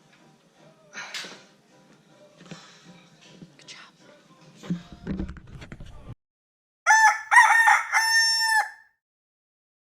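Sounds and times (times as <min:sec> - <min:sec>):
rooster crowing: 0:06.9 - 0:08.9.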